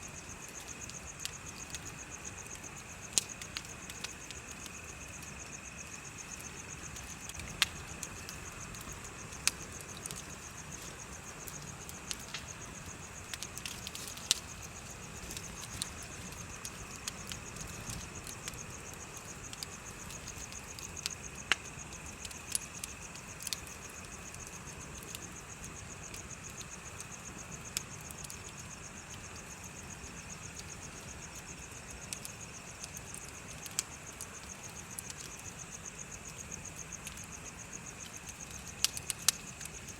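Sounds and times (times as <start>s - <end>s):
bonfire crackling and popping: 0.0s - 39.9s
insects chirping: 0.0s - 39.9s.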